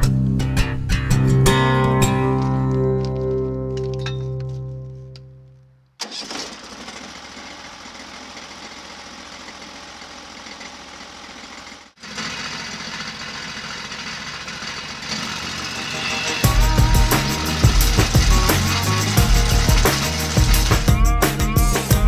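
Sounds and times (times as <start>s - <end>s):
music: 0.0s - 5.8s, 15.7s - 22.0s
small gas engine running: 6.0s - 21.0s.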